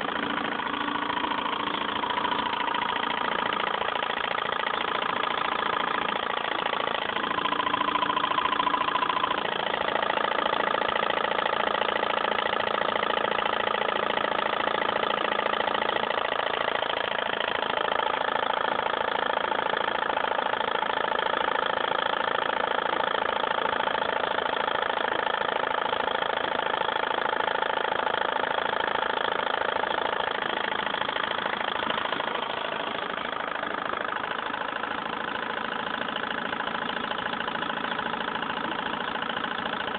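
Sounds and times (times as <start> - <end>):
small engine mechanical whir: 0.0 - 39.9.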